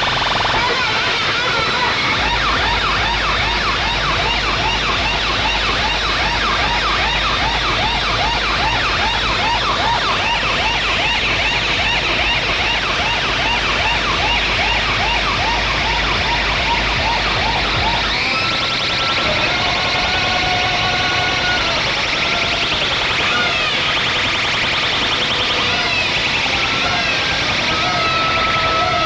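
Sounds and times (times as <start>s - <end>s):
wailing siren effect: 0.0s - 29.0s
deep bass: 2.1s - 18.4s.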